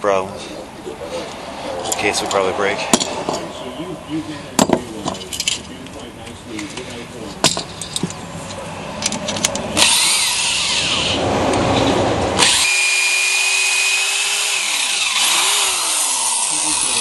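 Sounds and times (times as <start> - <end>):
power drill boring into metal: 9.8 - 11.2, 12.4 - 17.0.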